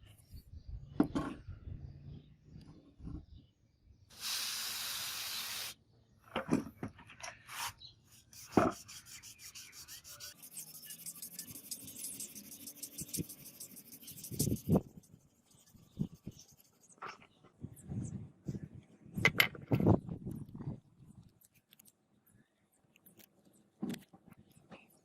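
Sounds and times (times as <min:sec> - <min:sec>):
steady hiss: 0:04.1 - 0:05.8
sanding metal blade: 0:08.2 - 0:17.0.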